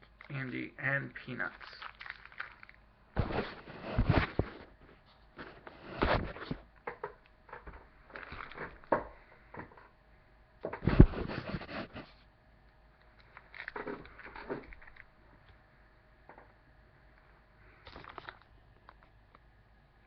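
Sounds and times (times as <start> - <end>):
wrapper crinkling: 1.3 - 4.6, 8.1 - 8.9, 13.2 - 15.1, 17.9 - 19.0
crunchy chewing: 1.4 - 2.8.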